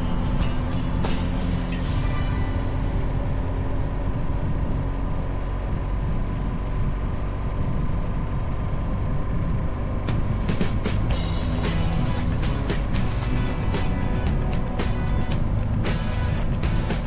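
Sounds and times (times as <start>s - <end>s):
wind rush on microphone: 0.0s - 11.2s
motorcycle engine at speed: 0.0s - 17.0s.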